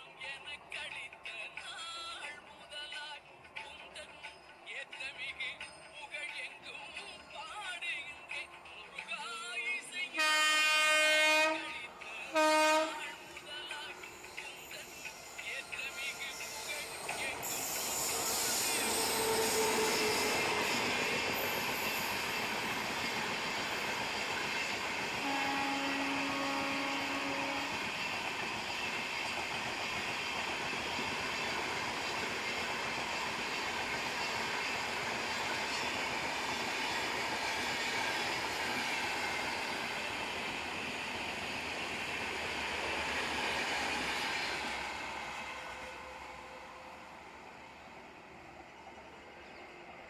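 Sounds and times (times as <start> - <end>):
train wheels on rails: 11.4 - 50.0.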